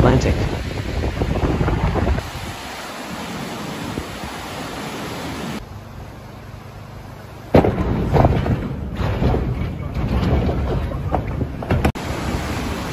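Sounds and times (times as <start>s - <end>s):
wind rushing: 0.0s - 5.6s
rain hiss: 0.5s - 7.4s, 12.0s - 12.9s.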